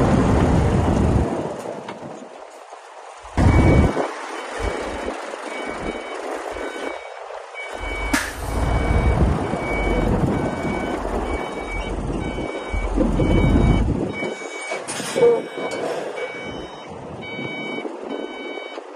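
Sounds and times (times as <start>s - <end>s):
diesel engine running: 3.1s - 17.4s
reversing alarm beeping: 3.4s - 18.9s.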